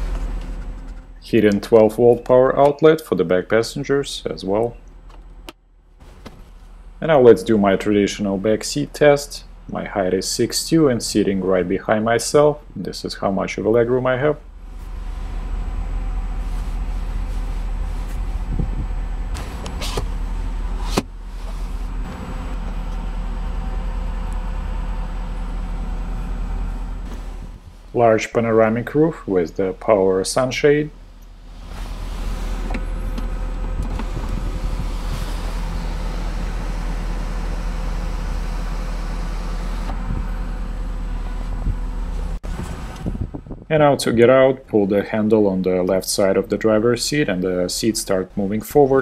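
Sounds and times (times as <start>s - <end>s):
car cabin low hum: 0.0s - 43.7s
electric sunshade motor running: 31.5s - 41.5s.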